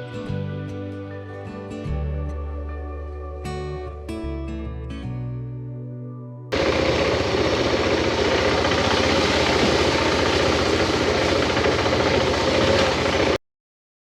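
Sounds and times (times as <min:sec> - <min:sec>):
motorcycle engine running: 0:06.5 - 0:13.4.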